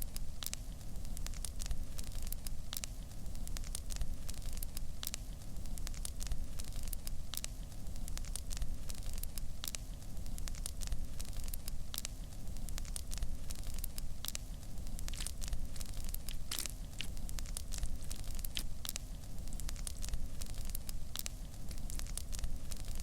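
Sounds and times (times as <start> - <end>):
crackling pops in hot pan: 0.0 - 23.0
steady low rumble: 12.3 - 23.0.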